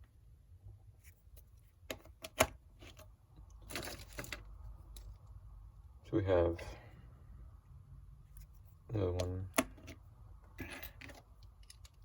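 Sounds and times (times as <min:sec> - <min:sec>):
plastic parts rustling: 0:03.6 - 0:05.2.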